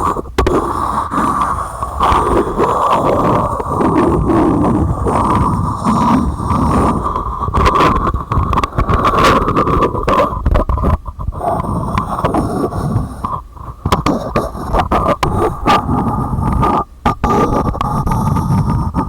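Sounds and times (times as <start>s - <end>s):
continuous rubbing: 0.0s - 19.0s.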